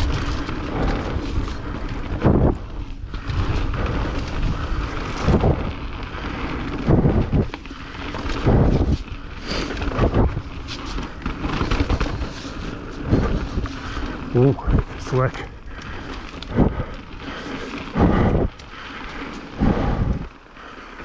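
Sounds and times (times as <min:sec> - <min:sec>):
heavy low thumps over bumps: 0:00.0 - 0:07.6, 0:08.2 - 0:09.1, 0:11.8 - 0:17.2, 0:17.9 - 0:18.6, 0:19.5 - 0:20.4
wind rushing over microphone: 0:00.0 - 0:20.4
bike tyres on wet trail: 0:00.0 - 0:21.0.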